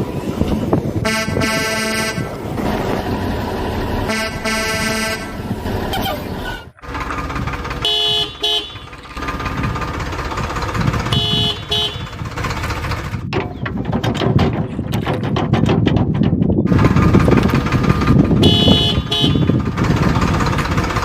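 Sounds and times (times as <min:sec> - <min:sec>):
vehicle horn toots: 0:01.0 - 0:02.3, 0:04.0 - 0:06.0, 0:07.8 - 0:09.0, 0:11.0 - 0:12.2, 0:18.4 - 0:19.6
motor running: 0:02.6 - 0:13.2.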